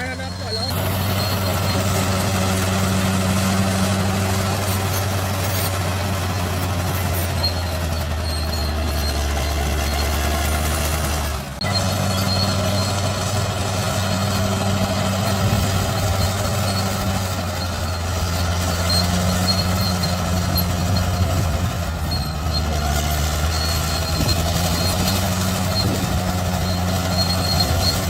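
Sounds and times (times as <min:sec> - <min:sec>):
bulldozer diesel engine running: 0:00.0 - 0:28.0.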